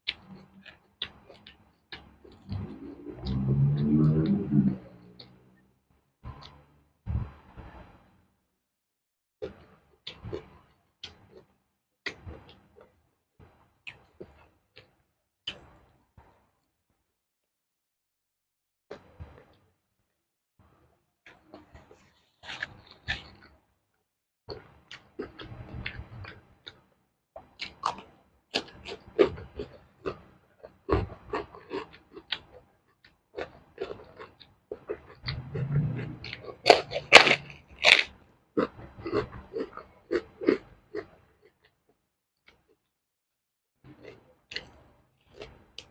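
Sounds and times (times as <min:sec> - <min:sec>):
chewing crisp vegetables: 0:00.0 - 0:05.3, 0:21.3 - 0:23.5, 0:24.5 - 0:26.8, 0:27.4 - 0:41.8, 0:43.8 - 0:45.9
crunching of raw vegetables: 0:33.4 - 0:41.8.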